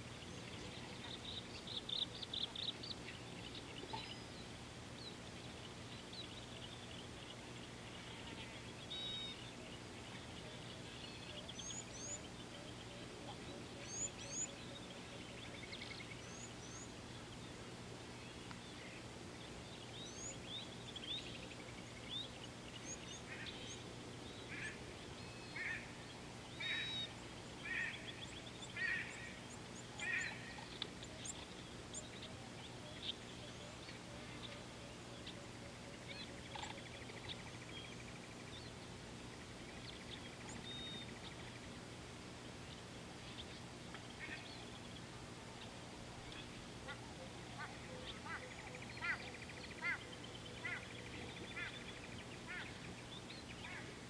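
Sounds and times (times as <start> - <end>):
steady low hum: 0.0 - 54.0
bird harsh calls: 46.9 - 52.8.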